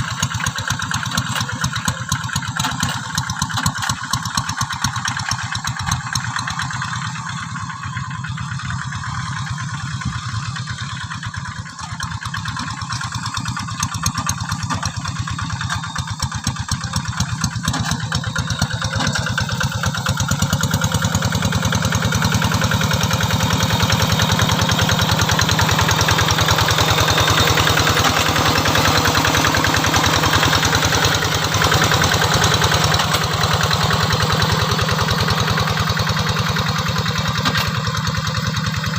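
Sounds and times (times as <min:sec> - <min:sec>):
hand tractor engine pulsing: 0:22.7 - 0:38.9.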